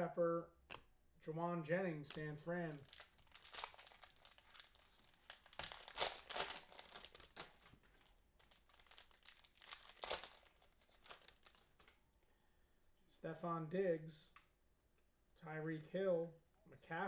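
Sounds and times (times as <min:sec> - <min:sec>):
cellophane wrapper crinkling: 0:02.0 - 0:12.0.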